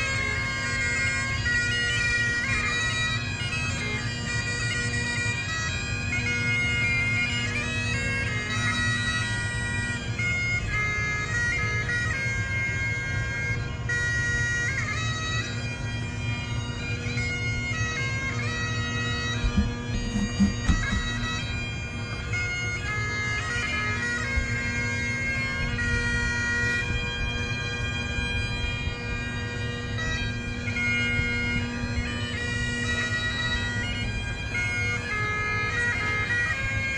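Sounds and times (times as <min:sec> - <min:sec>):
bagpipes playing: 0:00.0 - 0:36.9
low thumps: 0:19.3 - 0:21.6.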